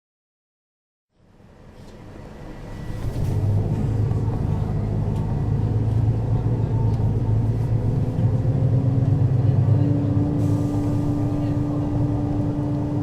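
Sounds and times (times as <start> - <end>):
bus diesel engine running: 1.2 - 13.0.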